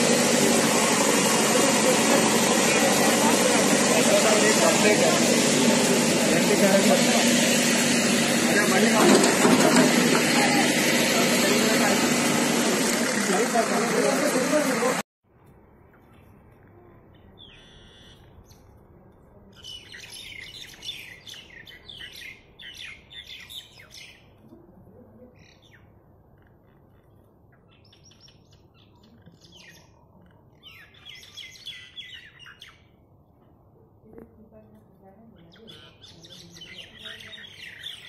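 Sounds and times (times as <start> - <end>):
small birds chirping: 16.0 - 18.8, 19.4 - 33.1, 34.1 - 38.0.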